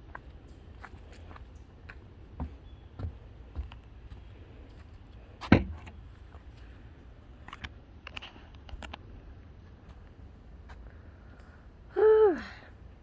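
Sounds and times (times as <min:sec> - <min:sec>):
footsteps on trail: 0:00.0 - 0:05.2.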